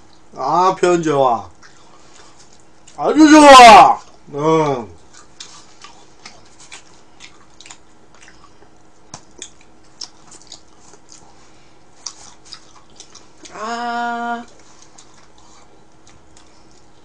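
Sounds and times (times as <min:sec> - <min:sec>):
faint steady hum: 0:00.0 - 0:17.0
person chewing: 0:01.5 - 0:03.0, 0:05.0 - 0:13.7, 0:14.4 - 0:17.0.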